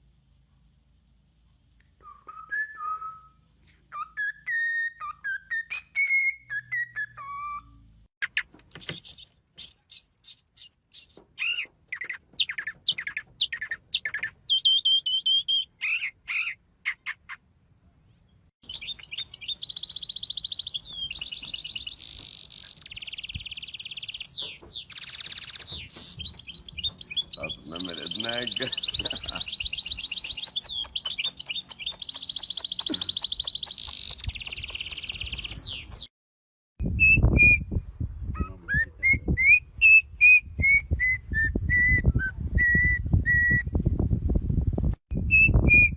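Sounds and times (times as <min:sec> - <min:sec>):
parrot high chirps: 0:09.0 - 0:17.4, 0:29.4 - 0:35.8.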